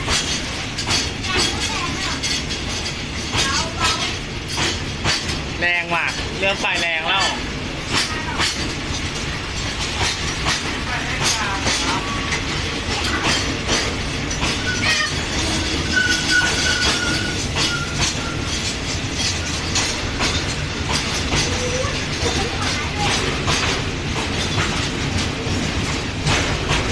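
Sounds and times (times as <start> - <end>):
train rumbling: 0.0 - 26.9
wheels clacking over rail joints: 0.0 - 26.9
high wheel squeal: 14.6 - 18.7.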